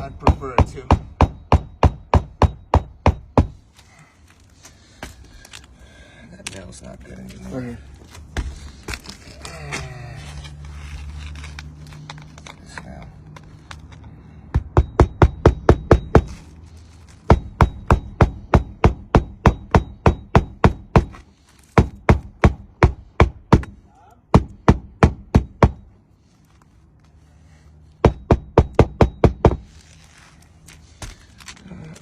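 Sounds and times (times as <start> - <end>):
hammer driving roofing nails: 0.0 - 3.6, 17.3 - 25.8.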